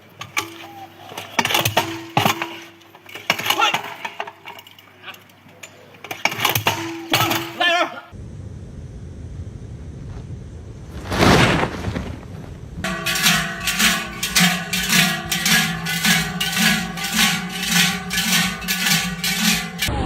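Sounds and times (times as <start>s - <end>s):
ringing metallic strikes: 12.9s - 20.0s.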